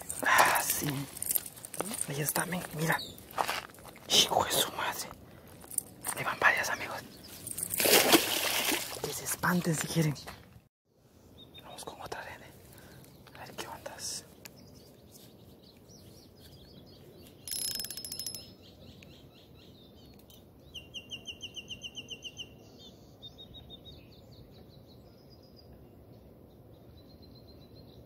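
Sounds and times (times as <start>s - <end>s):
small birds trilling: 0.0s - 3.4s.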